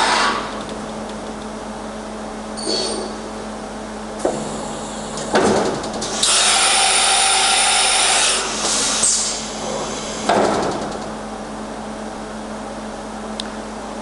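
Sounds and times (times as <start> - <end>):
machine hum: 0.0 - 14.0
machine noise bursts: 5.9 - 10.8.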